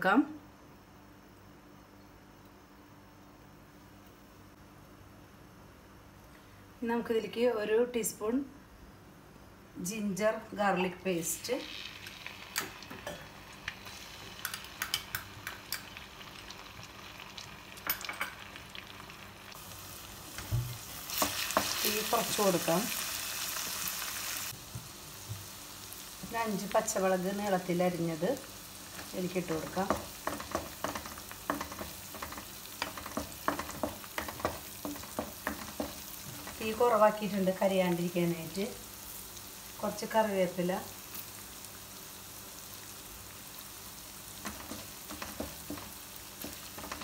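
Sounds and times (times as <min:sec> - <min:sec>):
paste sizzling in hot oil: 0:11.4 - 0:47.0
spoon scraping pan: 0:29.0 - 0:36.7.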